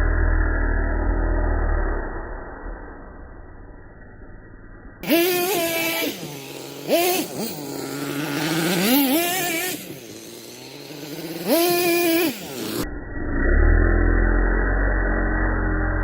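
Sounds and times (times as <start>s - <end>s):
small nitro engine revving: 5.0s - 16.0s.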